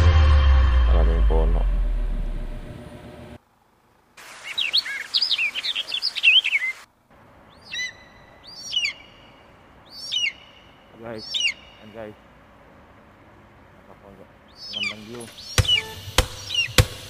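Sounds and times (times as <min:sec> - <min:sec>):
falling bird call: 0:04.2 - 0:06.9, 0:07.5 - 0:12.0, 0:14.5 - 0:17.0
birds chirping whistled notes: 0:04.3 - 0:12.2, 0:14.4 - 0:17.0.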